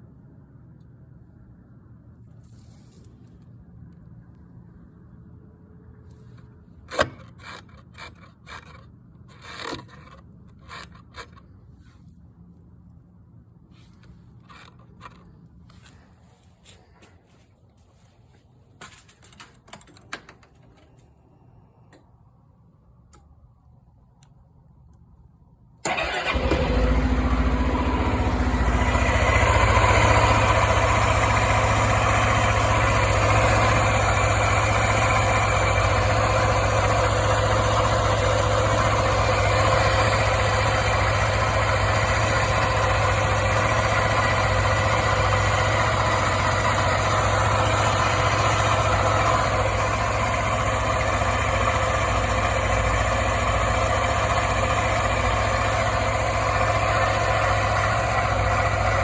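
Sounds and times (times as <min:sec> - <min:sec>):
scooter engine starting and idling: 0:25.8 - 0:59.0.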